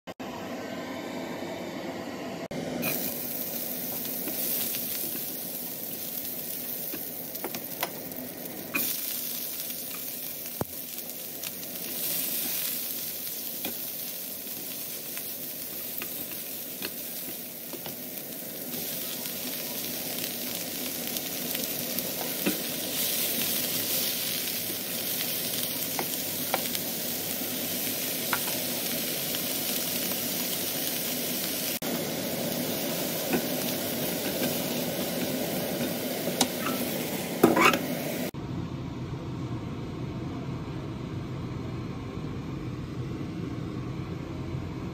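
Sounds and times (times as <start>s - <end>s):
greens sizzling in hot oil: 2.8s - 38.3s.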